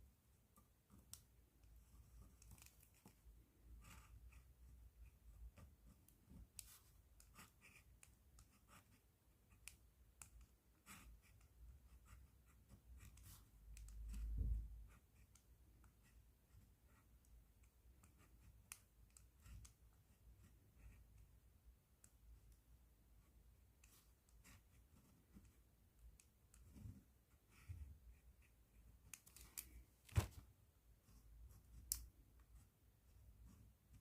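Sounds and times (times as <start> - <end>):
pen scratching on paper: 2.0 - 17.3, 18.0 - 21.4, 23.2 - 25.6.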